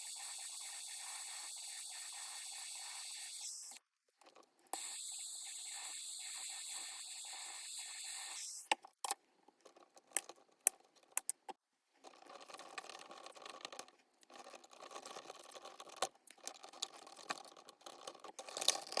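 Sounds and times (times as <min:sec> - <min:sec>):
steady hiss: 0:00.0 - 0:03.8.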